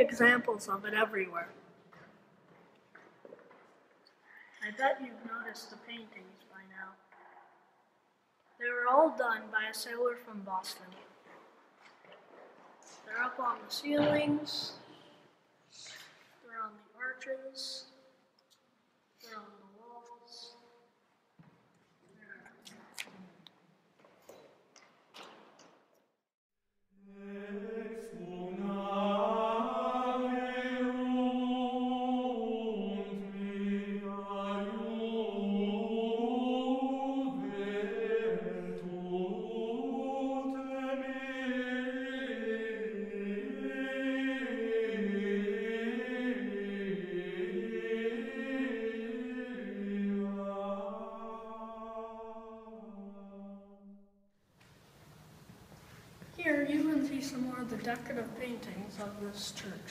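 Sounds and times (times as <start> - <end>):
voices singing chant: 27.1 - 53.6.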